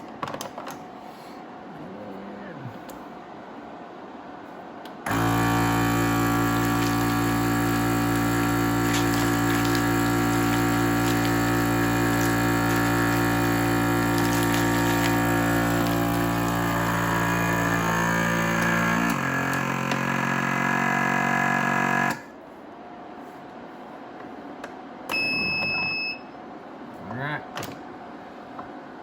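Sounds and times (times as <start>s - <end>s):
vacuum sealer pump running: 4.9s - 22.4s.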